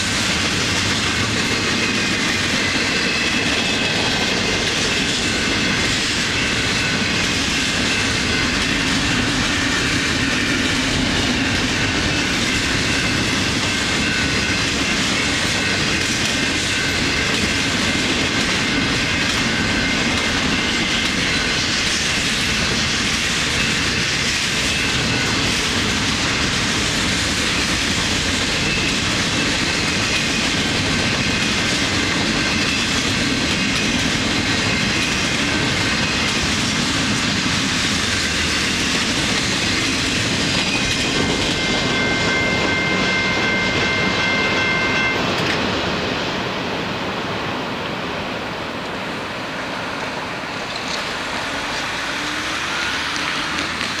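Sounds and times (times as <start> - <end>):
wheels clacking over rail joints: 0.0 - 44.2
high wheel squeal: 37.8 - 45.3.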